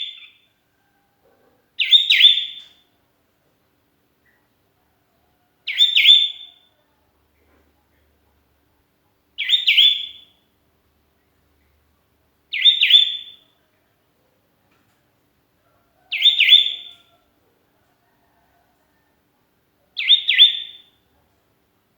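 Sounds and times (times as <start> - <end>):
bulbul calling: 1.8 - 2.8, 16.0 - 17.1, 20.0 - 21.0.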